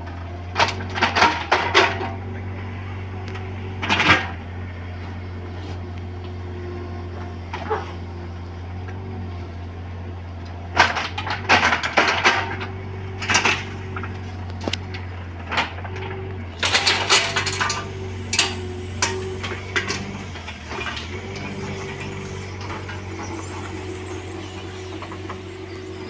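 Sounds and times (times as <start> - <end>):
excavator diesel engine running: 0.0 - 26.0
bucket clanking on soil and stones: 16.6 - 26.0.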